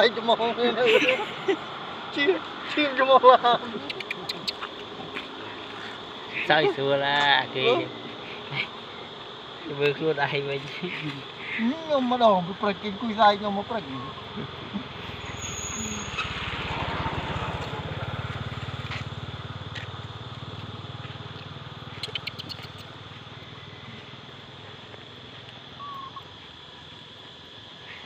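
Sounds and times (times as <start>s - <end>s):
small engine running: 13.8s - 25.8s.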